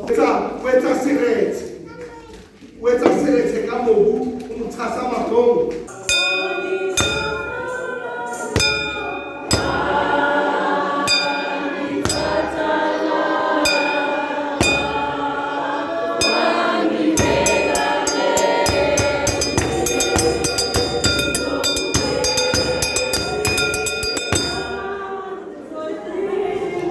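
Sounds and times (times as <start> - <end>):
choir singing in harmony: 5.8 - 26.9
drums and cymbals beat: 5.9 - 10.2, 11.1 - 12.7, 13.6 - 15.4, 16.2 - 24.8.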